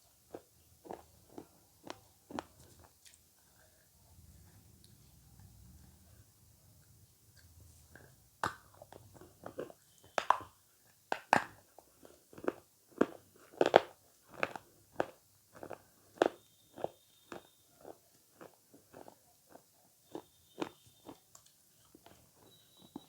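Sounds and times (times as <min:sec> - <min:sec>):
person chewing avocado: 0:00.3 - 0:03.2, 0:07.4 - 0:10.5, 0:11.1 - 0:23.0.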